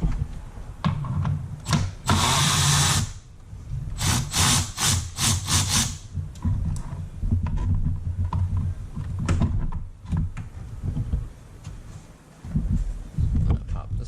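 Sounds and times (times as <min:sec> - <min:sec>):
cordless drill bursts: 0:02.0 - 0:03.2, 0:04.0 - 0:06.0.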